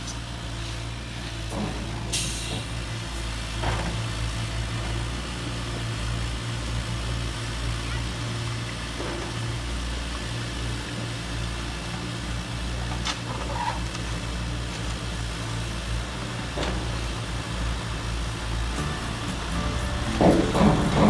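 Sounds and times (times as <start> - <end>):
low engine-like hum: 13.9 - 21.0.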